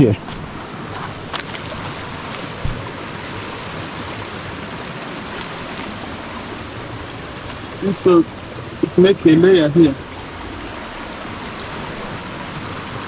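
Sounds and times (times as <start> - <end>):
stream water rushing: 0.0 - 13.0
soft low thump: 2.6 - 2.9.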